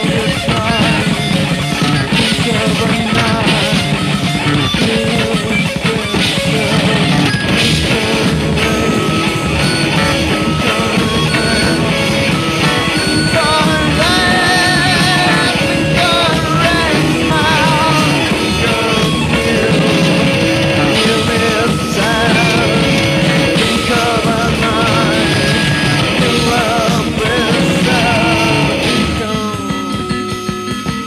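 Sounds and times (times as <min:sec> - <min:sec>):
rock band with guitar: 0:00.0 - 0:31.0
wavering vibrato melody: 0:00.3 - 0:31.0.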